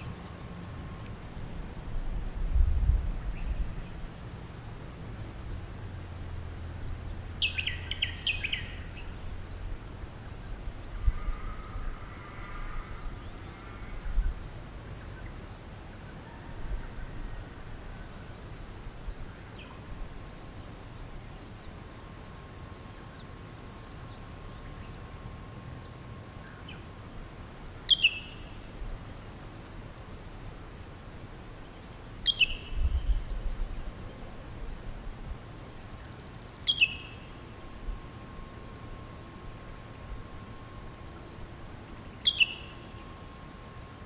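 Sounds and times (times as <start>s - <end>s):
low wind rumble: 0.0s - 44.0s
high down-slurred bird calls: 10.9s - 14.4s, 27.8s - 31.3s, 32.2s - 33.4s, 35.6s - 37.6s, 42.1s - 43.3s.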